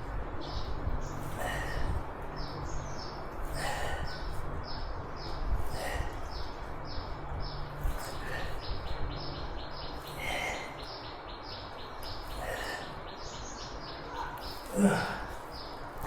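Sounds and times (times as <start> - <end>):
low background rumble: 0.0 - 16.0
bird chirping rapidly: 2.4 - 14.7.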